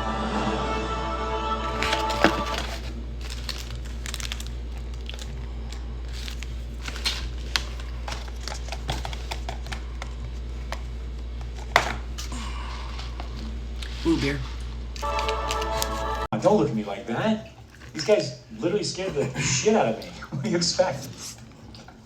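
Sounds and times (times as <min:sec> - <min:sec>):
low steady hum: 0:00.0 - 0:22.0
paper wrappers crinkling: 0:01.7 - 0:16.3.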